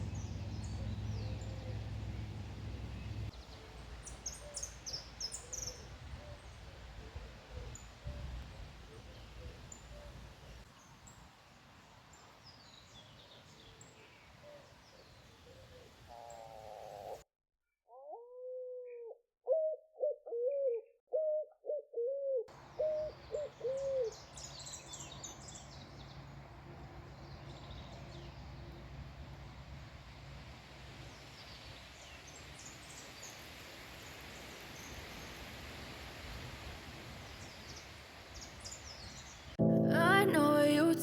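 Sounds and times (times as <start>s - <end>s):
small birds chirping: 0.0s - 6.6s
outdoor background noise: 0.0s - 17.2s, 22.5s - 41.0s.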